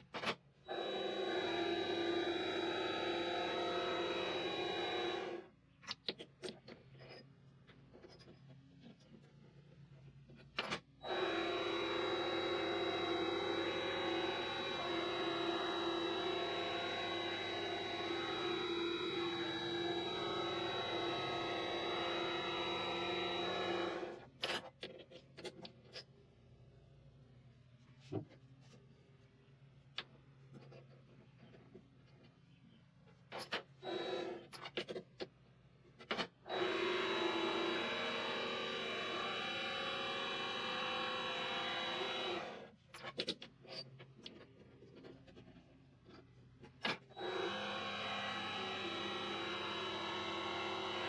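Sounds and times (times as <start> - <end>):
lathe whining: 0.7 - 5.5, 11.0 - 24.2, 36.5 - 42.7, 47.2 - 51.0.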